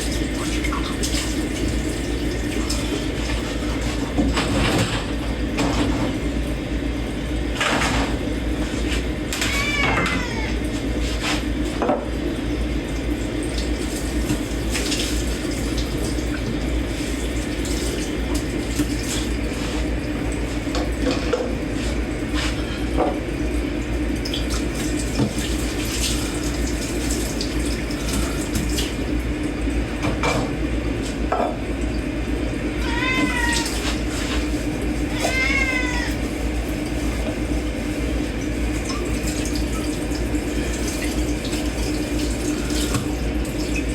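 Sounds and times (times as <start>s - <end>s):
tap water running: 0.0s - 43.9s
cat meowing: 9.3s - 10.7s, 32.8s - 34.0s, 35.1s - 36.2s.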